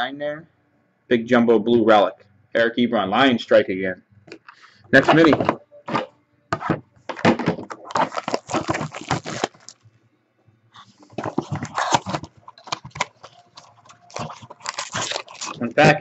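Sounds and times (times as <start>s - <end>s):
cardboard box crackling: 7.4s - 9.8s, 11.1s - 15.7s.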